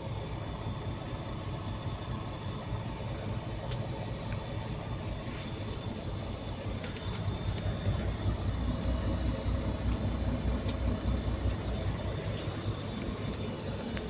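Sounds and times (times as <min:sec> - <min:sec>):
low rumble of engine and road: 0:00.0 - 0:14.0
light rattling clicks: 0:05.7 - 0:08.2, 0:09.8 - 0:10.9.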